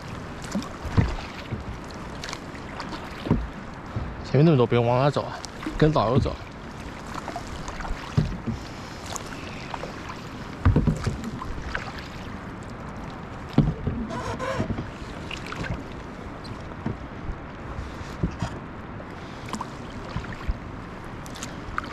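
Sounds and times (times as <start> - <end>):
water wash: 0.0 - 17.0
paddle strokes in water: 0.0 - 21.9.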